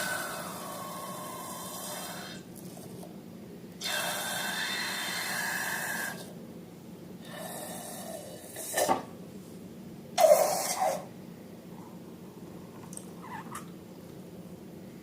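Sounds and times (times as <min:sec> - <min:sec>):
air hissing out of balloons: 0:10.2 - 0:11.1.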